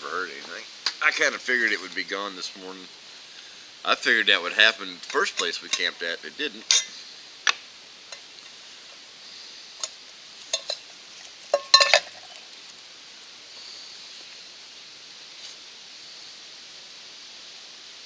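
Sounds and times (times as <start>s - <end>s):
faint steady hiss: 0.0s - 18.0s
metal cookware clinking: 5.0s - 6.0s, 6.6s - 7.0s, 9.8s - 12.5s.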